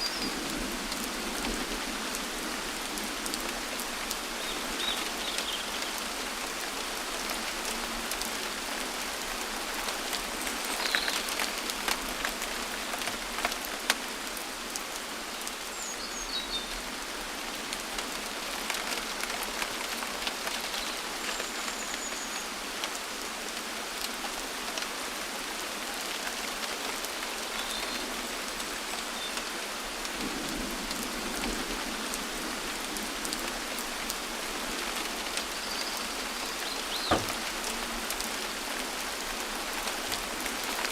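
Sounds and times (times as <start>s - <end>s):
rain falling: 0.0s - 40.9s
raindrops landing close: 36.6s - 38.3s.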